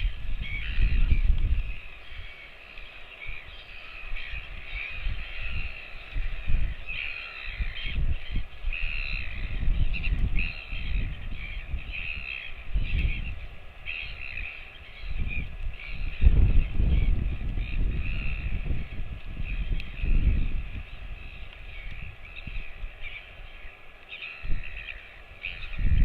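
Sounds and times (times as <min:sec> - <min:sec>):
crows cawing: 0:03.6 - 0:08.0.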